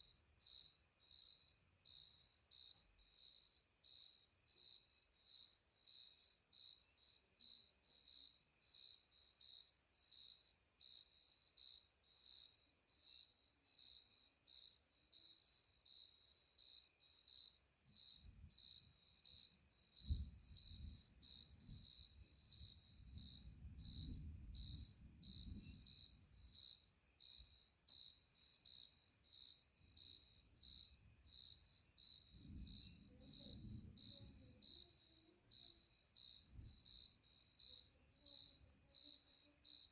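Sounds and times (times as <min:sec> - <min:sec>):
insect chirping: 0:00.0 - 0:39.9
distant thunder rumbling: 0:22.5 - 0:25.9, 0:32.3 - 0:34.9.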